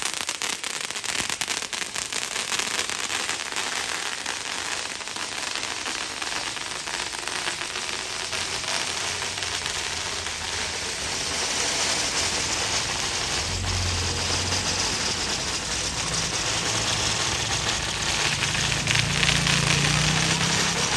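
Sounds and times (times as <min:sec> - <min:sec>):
dense rapid crackling: 0:03.4 - 0:20.9
diesel engine running: 0:13.0 - 0:20.9.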